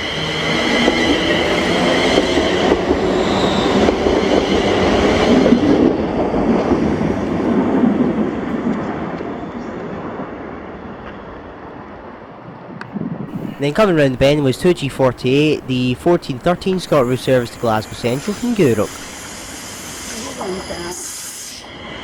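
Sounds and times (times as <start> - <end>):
high whine: 13.3 - 19.3
electric train passing: 13.3 - 22.0.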